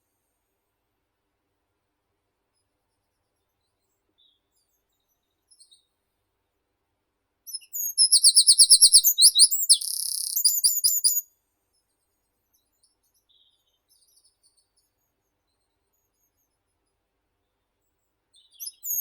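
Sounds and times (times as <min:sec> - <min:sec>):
faint bird chirps: 0:02.5 - 0:06.0, 0:07.5 - 0:19.0
songbird singing: 0:07.5 - 0:11.3, 0:18.4 - 0:19.0.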